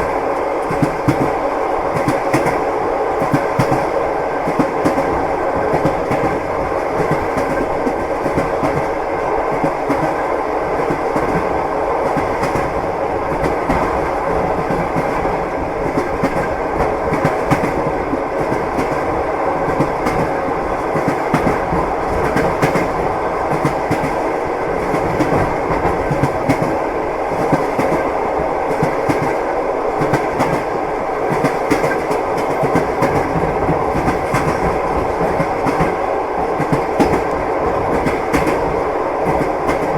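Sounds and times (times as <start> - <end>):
train wheels clattering over rail joints: 31.3 - 36.0, 36.6 - 39.9.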